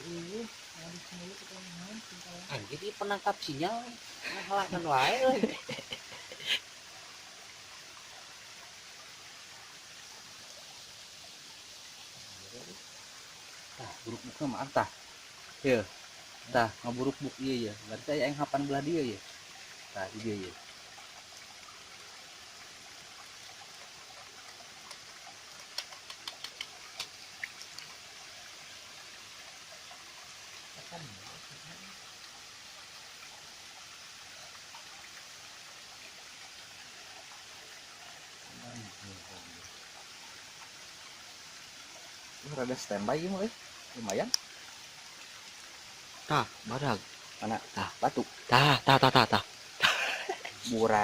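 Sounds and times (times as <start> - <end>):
flowing river water: 0.0 - 51.0
sharp clicks: 25.7 - 27.2.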